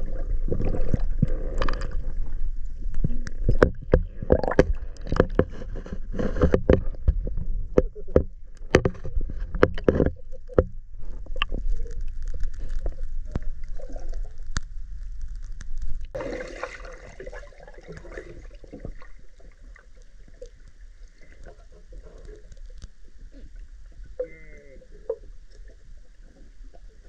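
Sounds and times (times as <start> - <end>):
water splashing and gurgling: 0.0 - 27.0.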